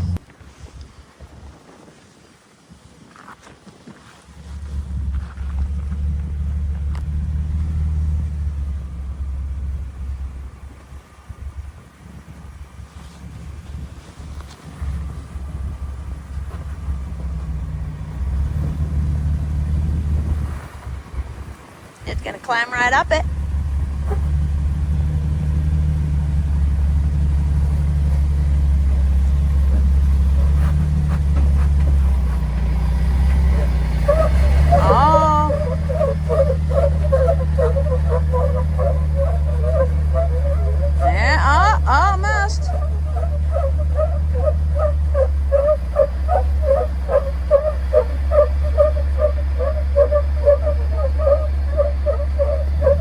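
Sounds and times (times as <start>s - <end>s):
engine rumbling: 0.0s - 1.7s, 4.0s - 53.0s.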